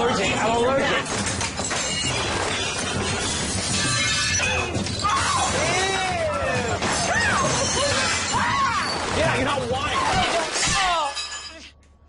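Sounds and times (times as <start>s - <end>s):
crashing shattering clatter: 0.3s - 11.7s.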